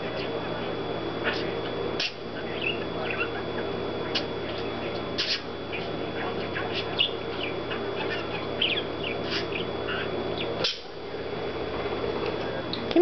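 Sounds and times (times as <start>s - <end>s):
steady background hum: 0.0s - 13.0s
parakeet chattering: 1.2s - 10.9s.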